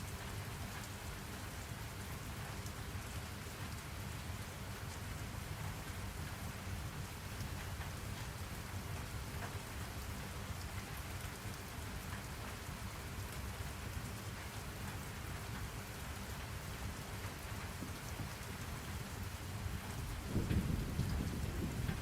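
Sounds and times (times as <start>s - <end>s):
steady rain falling: 0.0s - 22.0s
raindrop ticks: 0.1s - 1.4s, 4.8s - 22.0s.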